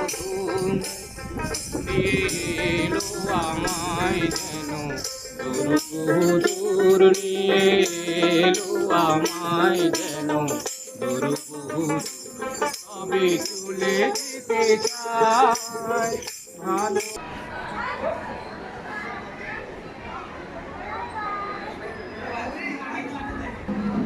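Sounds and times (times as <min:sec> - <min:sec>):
person singing folk song: 0:00.0 - 0:17.2
rattle shaken rhythmically: 0:00.0 - 0:17.2.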